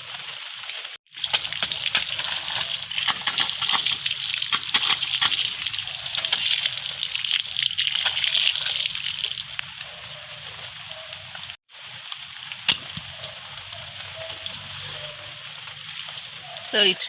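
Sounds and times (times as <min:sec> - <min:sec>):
water splashing and sloshing: 0:00.7 - 0:09.7.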